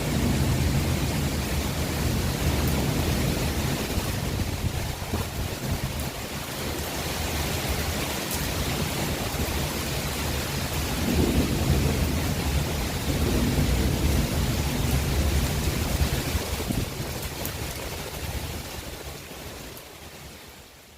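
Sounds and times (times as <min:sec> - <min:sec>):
heavy rain: 0:00.0 - 0:20.9.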